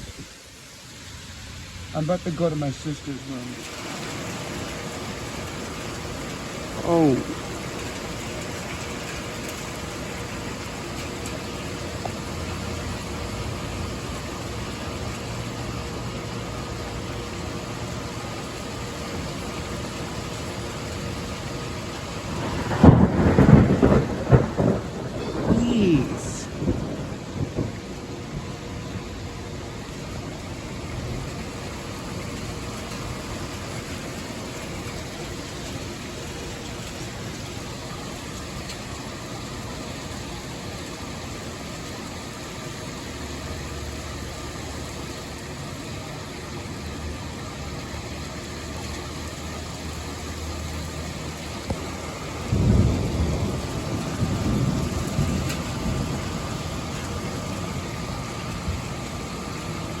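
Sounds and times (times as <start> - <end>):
steady rain: 0.0 - 60.0
wind: 0.0 - 60.0
thunder rumble: 22.0 - 36.1, 51.2 - 59.6.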